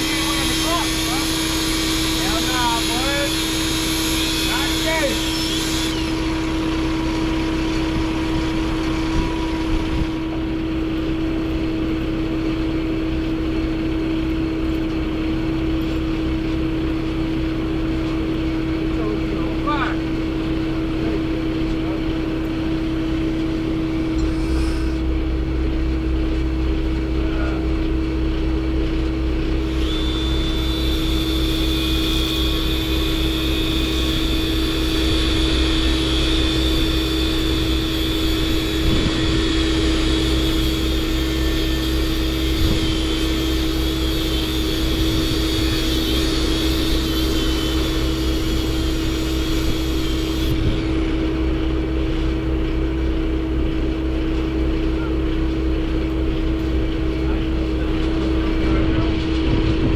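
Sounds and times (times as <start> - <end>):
truck engine droning: 0.0 - 59.9
faint high whine: 24.0 - 25.3, 29.6 - 50.8.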